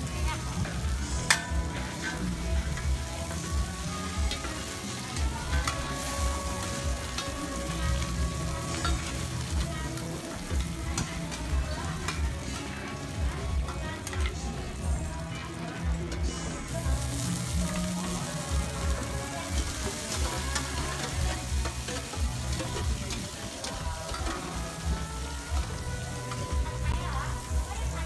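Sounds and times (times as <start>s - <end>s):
food sizzling in oil: 0.0s - 28.0s
metal spatulas scraping a pan: 16.3s - 24.8s.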